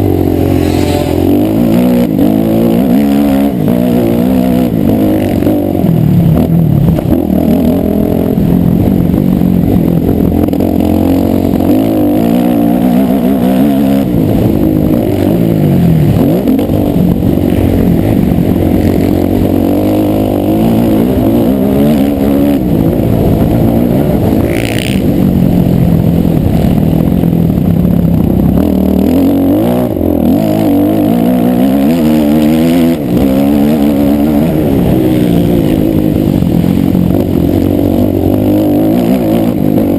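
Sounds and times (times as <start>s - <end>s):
motocross bike engine revving: 0.0s - 39.9s
brief high-pitched sound: 0.3s - 1.9s.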